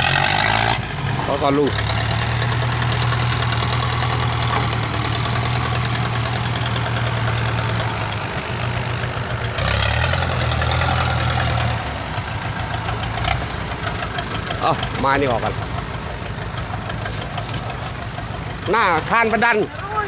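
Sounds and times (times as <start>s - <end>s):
diesel truck engine clattering: 0.0s - 20.0s.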